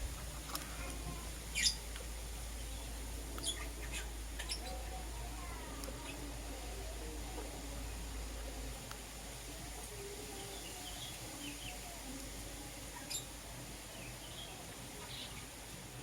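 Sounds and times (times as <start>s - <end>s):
background hiss: 0.0s - 16.0s
lovebirds chirping: 1.5s - 1.8s, 2.5s - 4.8s.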